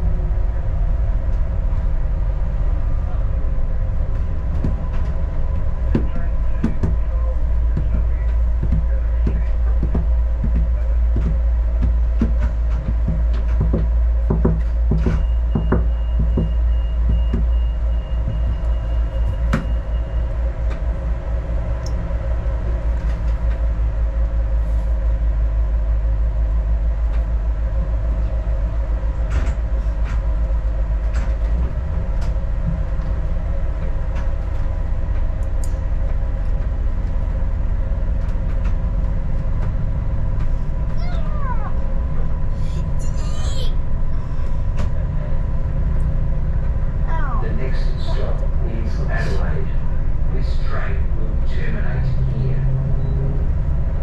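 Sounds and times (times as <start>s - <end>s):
train engine and rail rumble: 0.0s - 54.0s
wheels clicking over rail joints: 27.0s - 41.2s.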